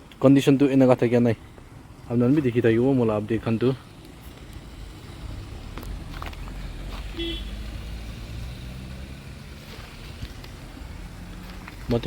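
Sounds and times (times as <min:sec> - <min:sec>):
vehicle engine rumbling: 0:00.0 - 0:12.0
horn toot: 0:07.1 - 0:07.6.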